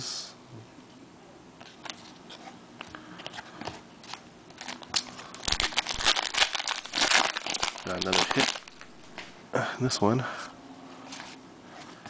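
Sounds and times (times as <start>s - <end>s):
wrapper crinkling and tearing: 4.5s - 9.2s.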